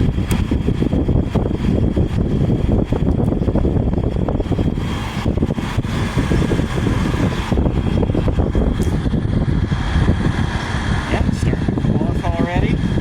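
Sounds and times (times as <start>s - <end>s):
air conditioner air rush: 0.0s - 13.0s
high whine: 0.0s - 13.0s.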